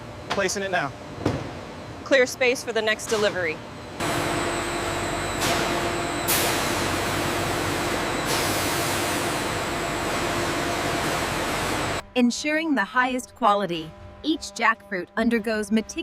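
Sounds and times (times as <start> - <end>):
industrial machinery hum: 0.0 - 12.6
machinery hiss: 5.4 - 12.0.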